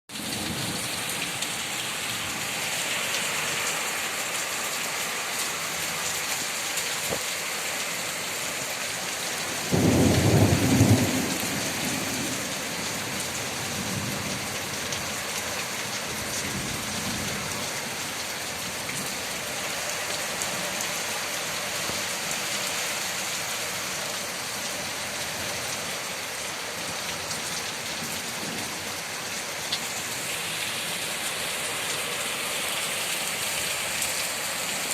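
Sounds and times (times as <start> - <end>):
heavy rain falling: 0.1 - 34.9
thunder rumbling: 9.6 - 13.0.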